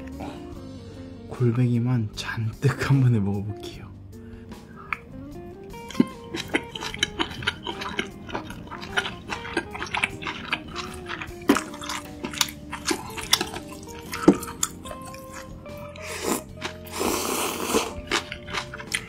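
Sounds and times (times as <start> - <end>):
plucked guitar music: 4.8 - 16.9
chewing crunchy food: 5.7 - 19.0.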